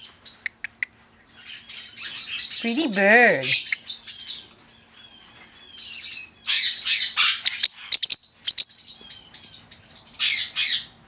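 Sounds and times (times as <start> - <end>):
parrotlet chirping and chattering: 5.7 - 10.9.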